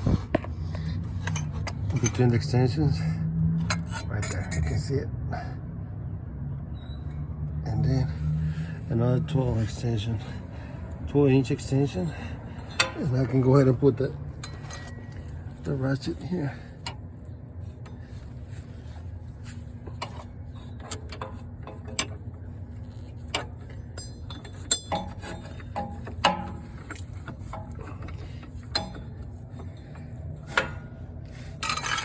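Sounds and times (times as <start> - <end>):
steady low hum: 7.6 - 32.0.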